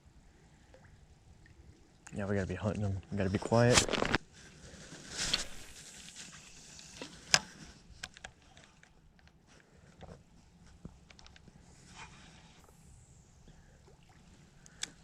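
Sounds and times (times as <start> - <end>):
quiet crackling: 0.4 - 15.0
soft rustling: 3.2 - 12.8.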